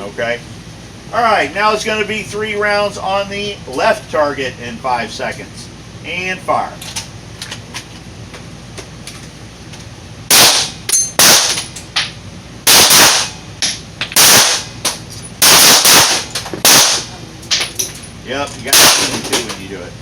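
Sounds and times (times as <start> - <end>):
pistol shots: 10.3 - 11.6, 12.7 - 13.4, 14.2 - 14.7, 15.4 - 17.2, 18.7 - 19.3.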